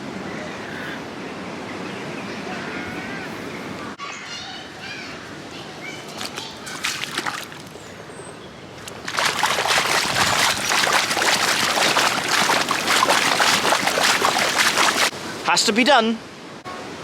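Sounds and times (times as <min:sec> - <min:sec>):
feet splashing in muddy puddle: 0:06.0 - 0:08.0, 0:08.8 - 0:15.1.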